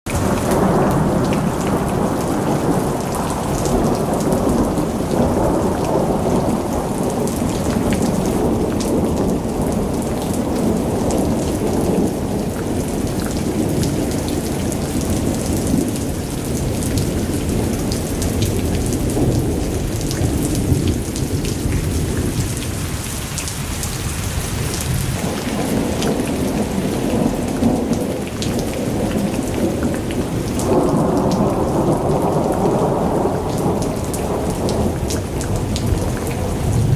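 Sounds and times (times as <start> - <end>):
rain drops ticking: 0.1 - 36.9.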